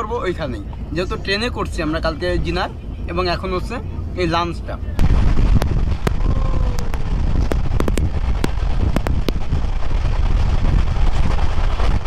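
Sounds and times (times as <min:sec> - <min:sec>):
wind buffeting microphone: 0:00.0 - 0:12.0
train rumbling at speed: 0:05.0 - 0:12.0.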